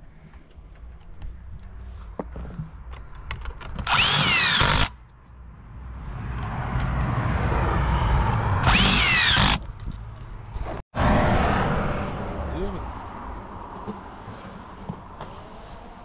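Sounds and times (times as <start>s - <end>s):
power tool whine: 3.9s - 4.9s, 8.6s - 9.6s
low rumble: 5.3s - 13.7s.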